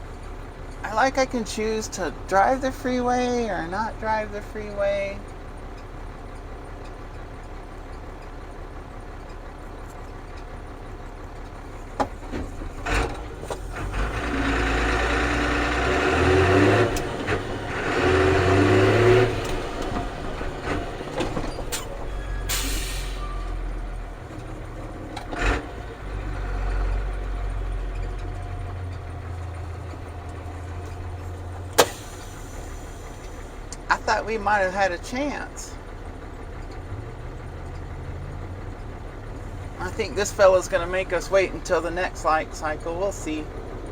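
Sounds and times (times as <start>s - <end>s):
diesel truck engine revving: 0.0s - 43.9s.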